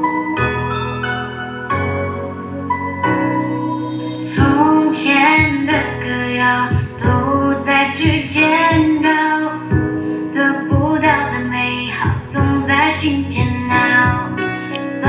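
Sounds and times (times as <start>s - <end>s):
instrumental music with low beat: 0.0s - 15.0s
woman singing: 4.2s - 15.0s.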